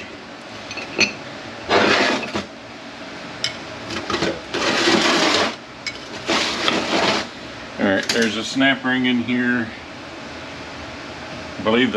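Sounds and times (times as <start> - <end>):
metal rasping: 4.5 - 5.6.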